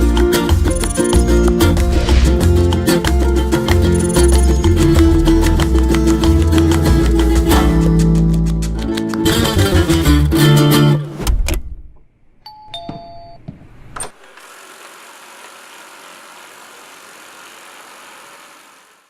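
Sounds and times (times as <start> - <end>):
acoustic guitar music: 0.0 - 11.2.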